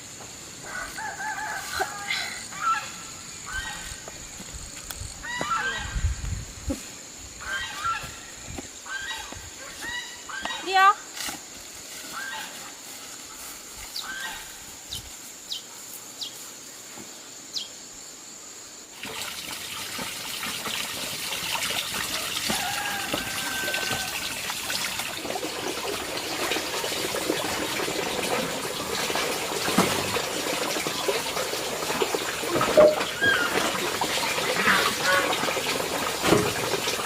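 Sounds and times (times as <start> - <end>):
water running and splashing: 18.9 - 37.0.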